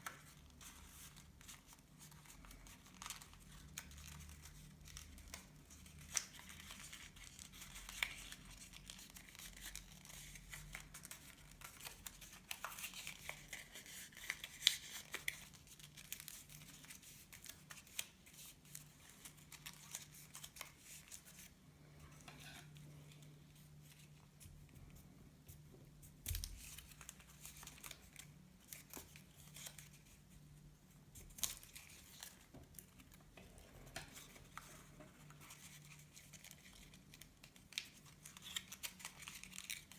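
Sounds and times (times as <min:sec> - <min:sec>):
paper rustling and crinkling: 0:00.0 - 0:30.4, 0:31.1 - 0:39.9.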